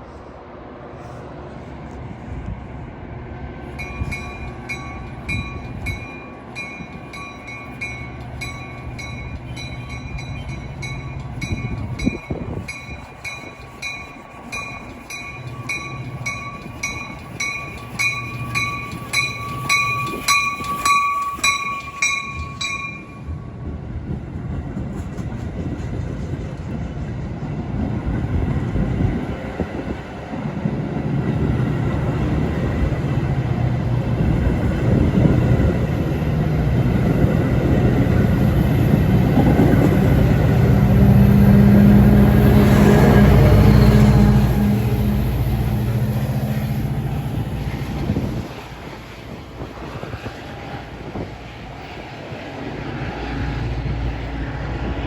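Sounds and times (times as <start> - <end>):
train engine and wheel rumble: 0.0 - 55.0
locomotive bell ringing: 3.7 - 23.6.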